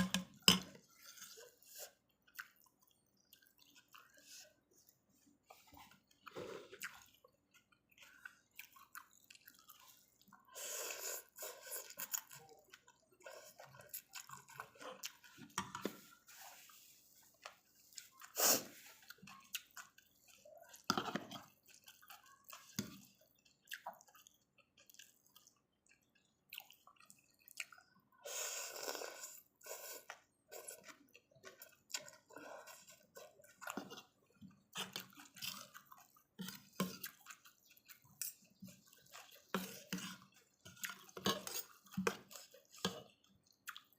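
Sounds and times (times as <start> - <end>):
chewing: 0.0 - 43.9
slurping noodles: 9.9 - 12.1, 28.2 - 31.0, 38.2 - 43.2.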